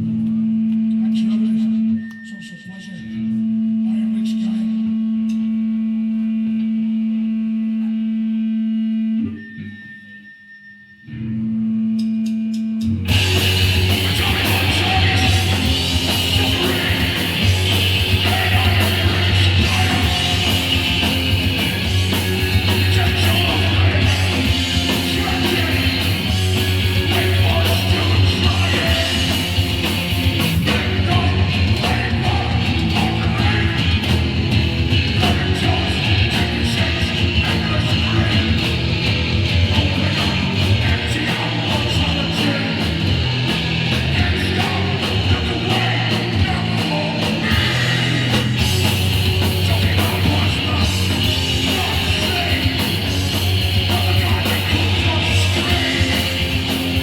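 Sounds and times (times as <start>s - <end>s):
punk band playing loud: 13.0s - 57.0s.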